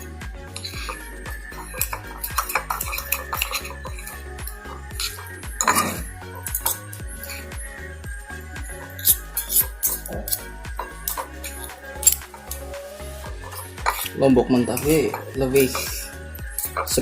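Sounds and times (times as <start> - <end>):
background music: 0.0 - 17.0
cutlery scraping a dish: 0.5 - 7.5, 8.9 - 12.7, 13.4 - 14.2, 16.6 - 17.0
cutlery clatter: 1.6 - 4.2, 5.0 - 7.4.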